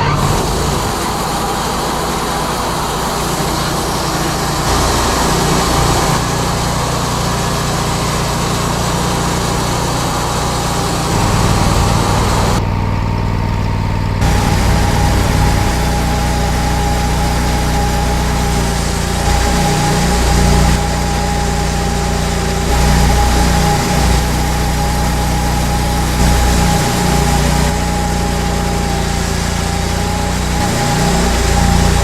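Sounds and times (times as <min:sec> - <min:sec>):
sawmill engine humming: 0:00.0 - 0:32.0
steady whine: 0:00.0 - 0:32.0.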